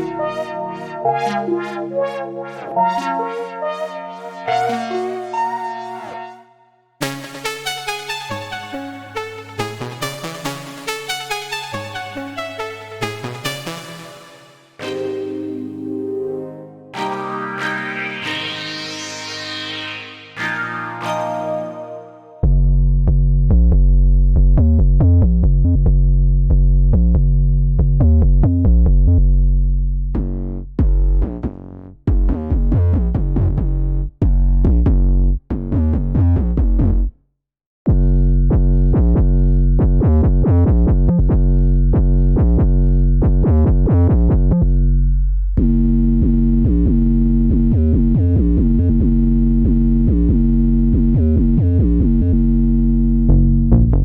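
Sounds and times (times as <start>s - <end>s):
synth keys: 0.0s - 22.5s
sustained bass: 22.4s - 37.2s, 37.9s - 54.0s.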